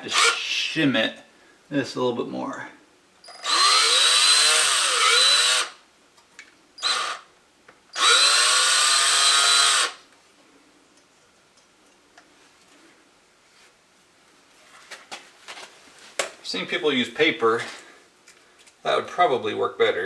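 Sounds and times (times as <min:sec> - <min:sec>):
cordless drill spinning screw: 0:00.1 - 0:00.4, 0:03.3 - 0:05.8, 0:06.8 - 0:07.3, 0:08.0 - 0:10.0.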